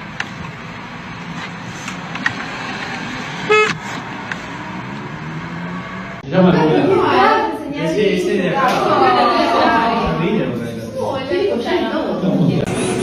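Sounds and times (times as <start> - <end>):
traffic background noise: 0.0 - 13.0
short horn honk: 3.5 - 3.8.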